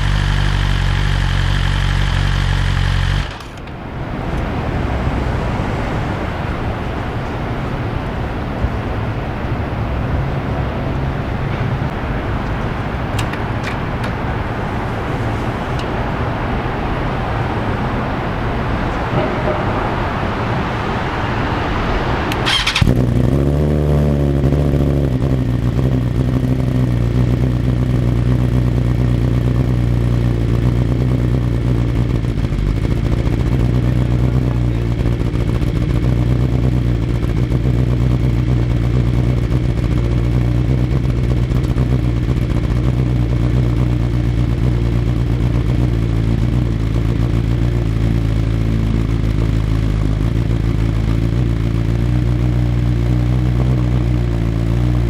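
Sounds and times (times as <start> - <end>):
motorcycle engine starting and idling: 0.0 - 55.0.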